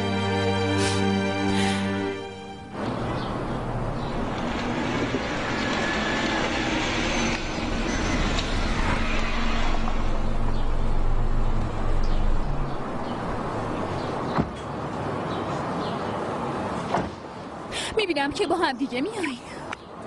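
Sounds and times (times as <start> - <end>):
car engine rumbling: 2.5 - 14.6.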